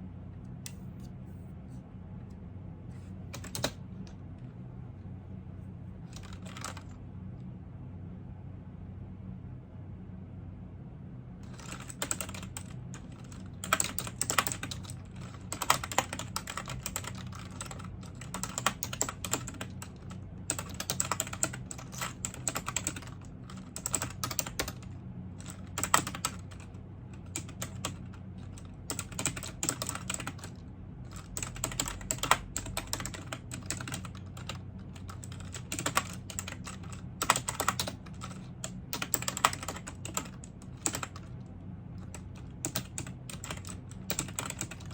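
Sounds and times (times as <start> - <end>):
typing on computer keyboard: 3.3 - 3.8, 6.1 - 6.9, 11.4 - 41.3, 42.0 - 44.9.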